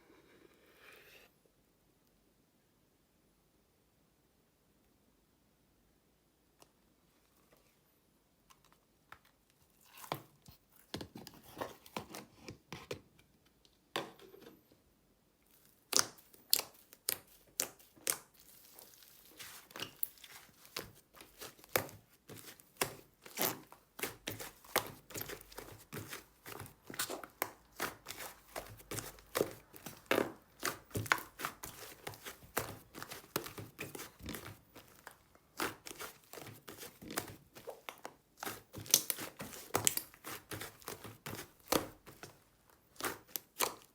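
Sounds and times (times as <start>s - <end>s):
slime crackling and popping: 15.5s - 43.9s.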